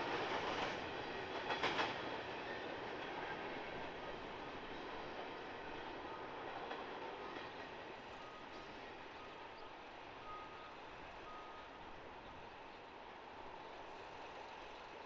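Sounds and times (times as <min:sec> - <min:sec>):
vehicle back-up alarm beeping: 0:10.2 - 0:11.8.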